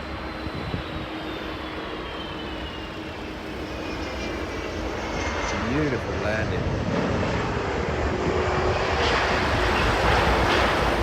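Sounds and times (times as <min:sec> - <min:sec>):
high engine whine falling in pitch: 0:00.0 - 0:06.7
jet airliner landing: 0:00.0 - 0:11.0.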